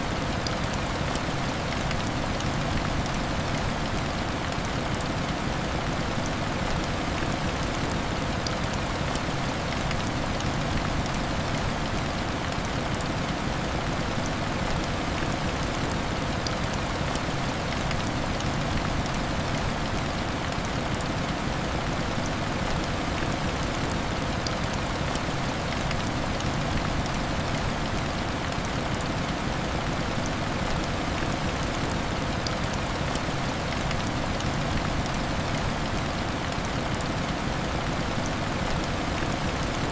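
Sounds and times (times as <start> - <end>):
heavy rain falling: 0.1 - 39.9.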